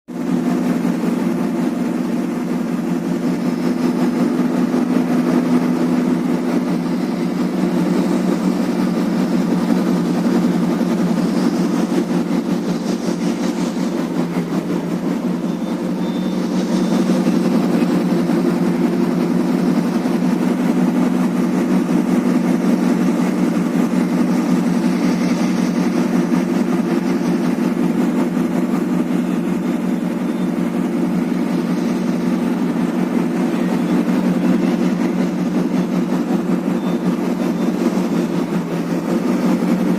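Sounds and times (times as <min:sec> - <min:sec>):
boat engine droning: 0:00.1 - 0:39.9.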